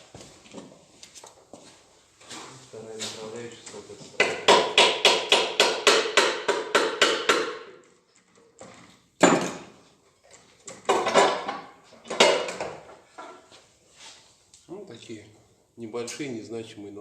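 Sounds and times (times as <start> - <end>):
metallic clanks and knocks: 8.7 - 13.5.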